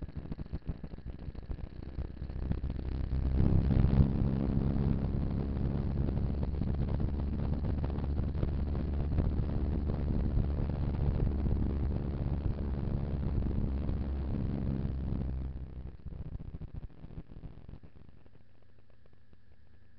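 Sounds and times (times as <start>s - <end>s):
wind noise on microphone: 1.3s - 15.7s
motorcycle engine running: 1.3s - 18.2s.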